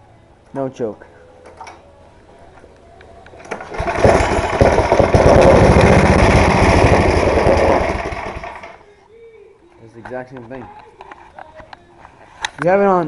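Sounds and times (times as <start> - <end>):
snowblower engine starting and running: 3.4 - 8.8.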